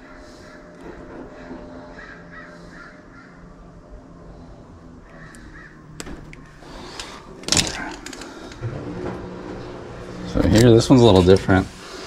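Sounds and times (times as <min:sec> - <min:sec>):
bird harsh calls: 0:00.0 - 0:07.4
low steady hum: 0:00.0 - 0:12.0.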